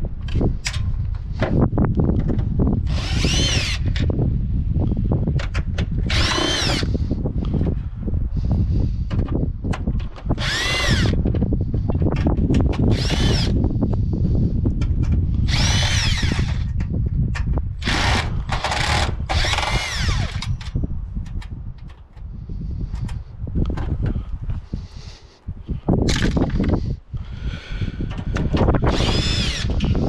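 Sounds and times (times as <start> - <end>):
steady low rumble: 0.0 - 30.0
cordless drill motor whining: 2.8 - 4.1, 6.0 - 7.2, 10.3 - 11.3, 12.8 - 13.7, 15.4 - 16.8, 17.8 - 20.8, 28.2 - 30.0.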